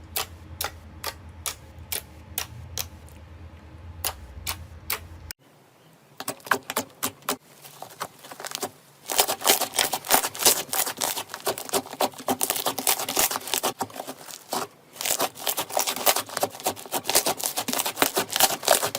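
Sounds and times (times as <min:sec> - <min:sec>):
slime squished crackling: 0:06.2 - 0:18.9.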